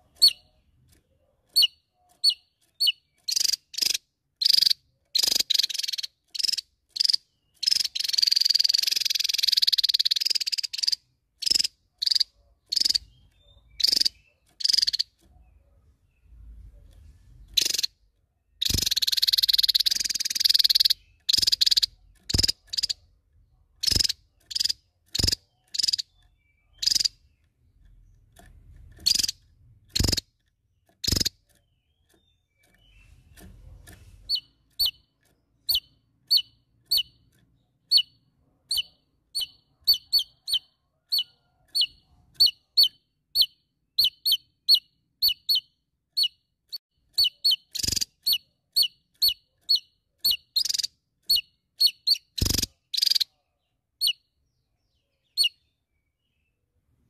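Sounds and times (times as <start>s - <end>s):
thin high down-flicking bird notes: 0.0s - 15.6s, 23.8s - 53.3s
bird calling with buzzy trill: 0.0s - 16.3s, 17.5s - 33.5s, 34.2s - 53.4s, 54.0s - 54.3s, 55.2s - 55.7s.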